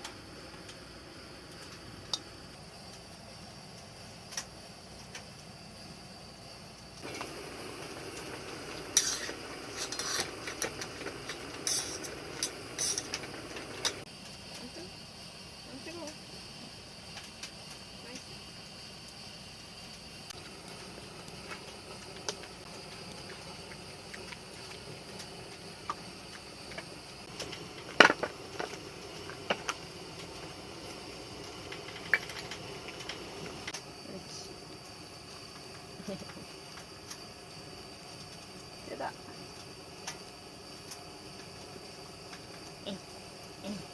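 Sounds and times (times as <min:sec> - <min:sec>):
steady hiss: 0:00.0 - 0:43.9
small clicks and knocks: 0:31.6 - 0:33.8.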